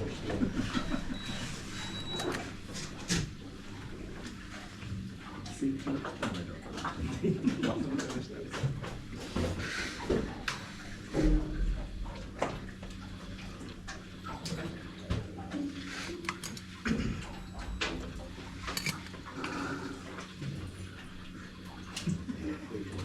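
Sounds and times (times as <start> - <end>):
small clicks and knocks: 16.1 - 16.7.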